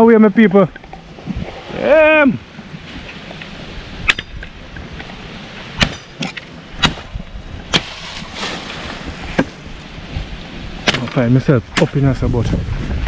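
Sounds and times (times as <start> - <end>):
wind noise: 0.7 - 13.0
sharp knocks: 5.8 - 7.1.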